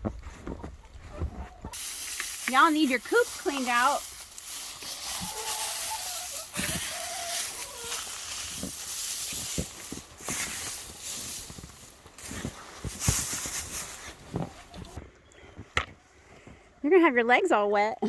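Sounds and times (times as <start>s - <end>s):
rustling and crunching: 0.0s - 16.4s
hen clucking: 4.6s - 8.9s.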